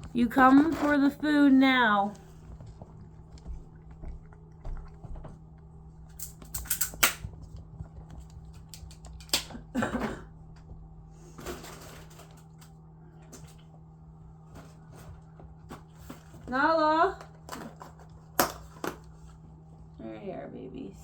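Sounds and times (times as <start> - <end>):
low hum: 0.0 - 21.0
cat chewing food: 2.0 - 6.5, 7.2 - 9.2.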